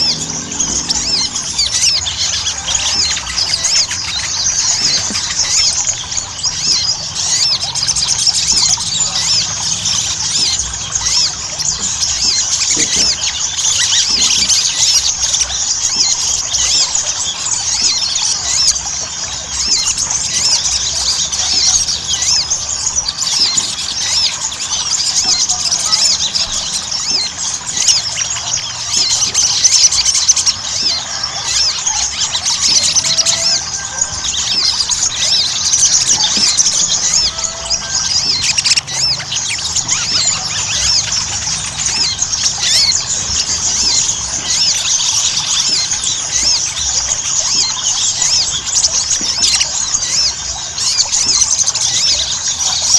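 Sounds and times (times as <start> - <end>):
bird chirping rapidly: 0.0 - 52.9.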